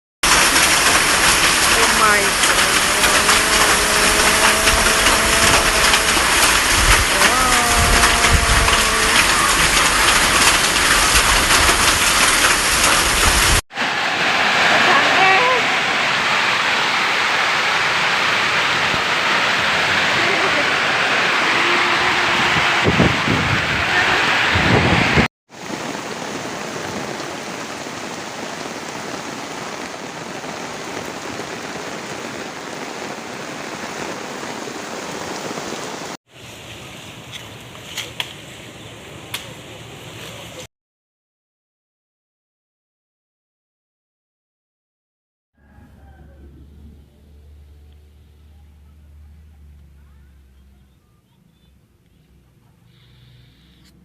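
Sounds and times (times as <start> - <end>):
hailstones ticking on surfaces: 0.2 - 13.6
heavy rain hissing: 0.2 - 40.7, 52.8 - 54.0.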